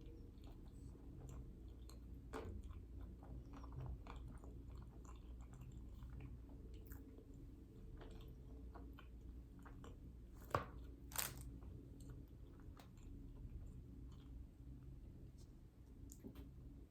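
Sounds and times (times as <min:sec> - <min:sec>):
person chewing: 0:00.1 - 0:10.0.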